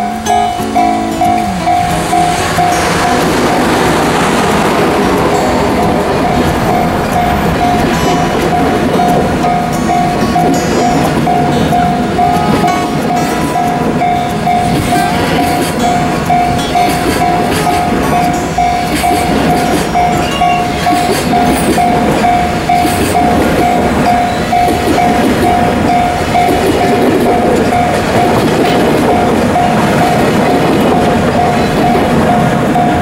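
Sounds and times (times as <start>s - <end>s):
freight train wheels clattering: 0.0s - 33.0s
pulsing bell-like alarm tone: 0.0s - 33.0s.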